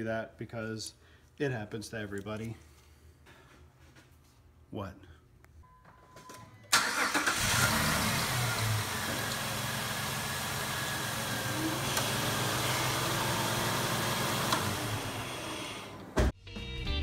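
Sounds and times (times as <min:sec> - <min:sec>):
car engine starting and idling: 0:06.7 - 0:16.3.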